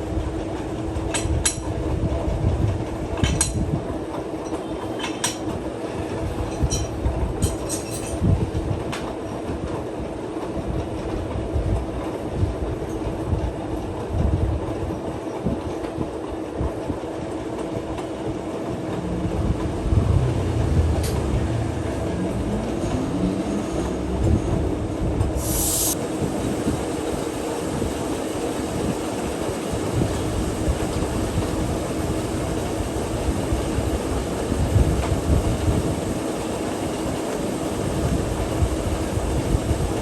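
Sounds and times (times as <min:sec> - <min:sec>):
short high hiss: 0:25.4 - 0:26.0.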